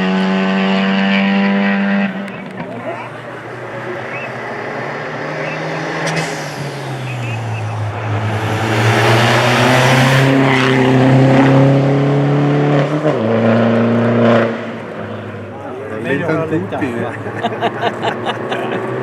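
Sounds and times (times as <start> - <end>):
rally car engine accelerating: 0.0 - 19.0
gear upshifts: 3.9 - 11.7.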